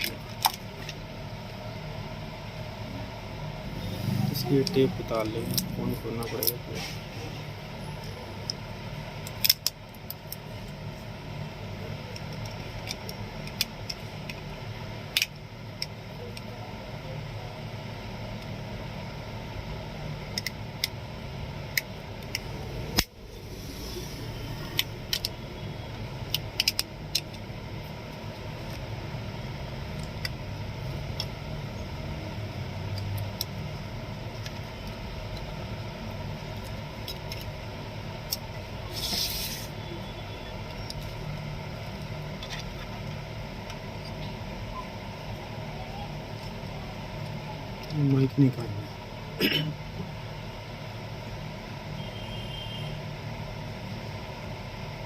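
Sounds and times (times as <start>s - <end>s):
low background hum: 0.0s - 55.0s.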